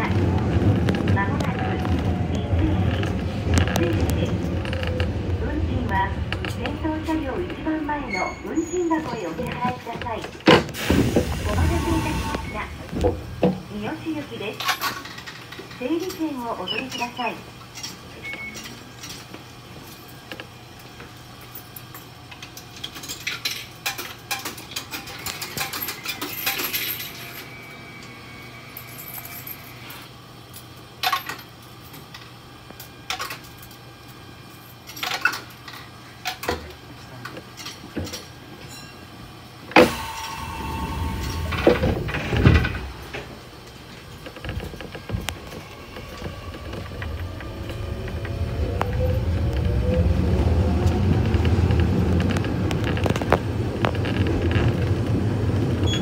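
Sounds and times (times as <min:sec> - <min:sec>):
low rumble with steady tone: 0:00.0 - 0:17.0, 0:40.0 - 0:56.0.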